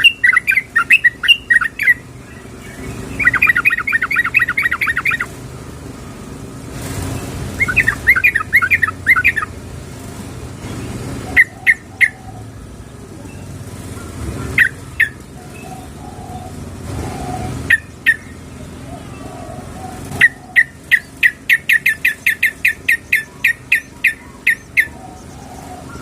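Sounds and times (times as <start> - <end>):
bird chattering calls: 0.0 - 5.5, 6.9 - 9.6, 10.2 - 26.0
short sharp bird calls: 7.1 - 9.5.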